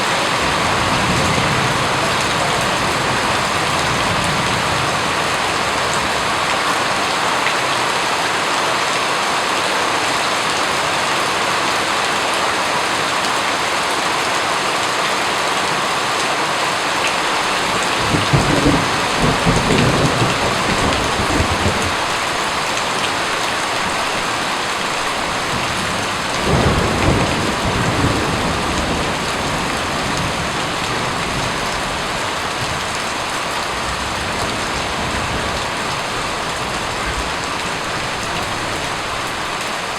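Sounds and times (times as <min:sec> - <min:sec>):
low rolls of thunder: 0:00.0 - 0:07.0, 0:17.6 - 0:39.2
steady rain: 0:00.0 - 0:39.9.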